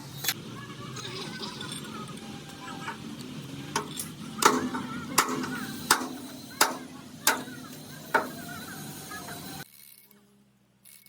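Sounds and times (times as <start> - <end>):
hammer striking: 3.8 - 8.8.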